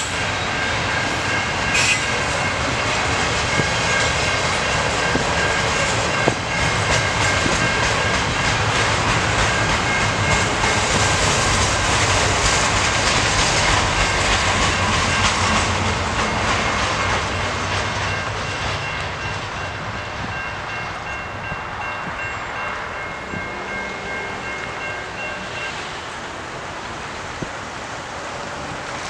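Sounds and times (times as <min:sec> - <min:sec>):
freight train wheels rumbling: 0:00.0 - 0:29.0
faint steady high tones: 0:18.1 - 0:26.2.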